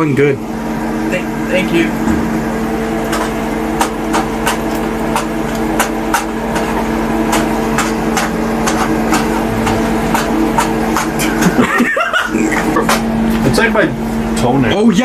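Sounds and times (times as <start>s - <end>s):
kitchen appliance hum: 0.0s - 15.0s
knife chopping on cutting board: 3.1s - 11.5s.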